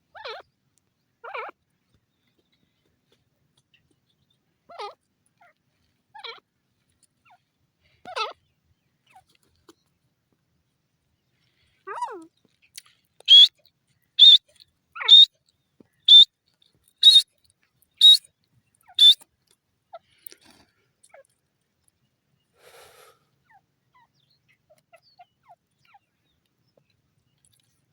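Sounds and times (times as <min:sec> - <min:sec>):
francolin calling: 0:13.3 - 0:13.5, 0:14.2 - 0:14.4, 0:15.0 - 0:15.3, 0:16.0 - 0:16.3, 0:17.0 - 0:17.2, 0:18.0 - 0:19.2.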